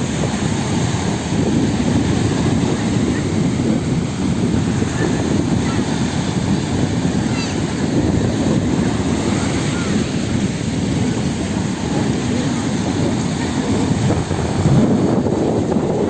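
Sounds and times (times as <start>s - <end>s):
wind blowing across microphone: 0.0s - 16.0s.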